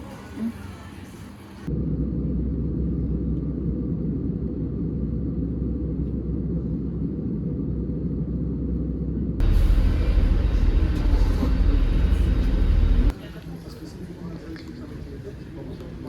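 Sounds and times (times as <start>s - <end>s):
muffled vehicle rumble: 1.6s - 13.2s.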